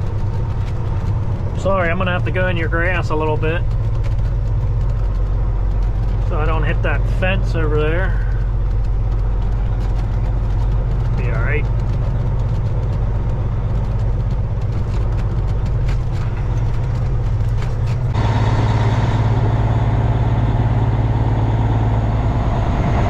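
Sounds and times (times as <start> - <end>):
clicks and rattles: 0.0 - 18.2
truck diesel engine running: 0.0 - 23.0.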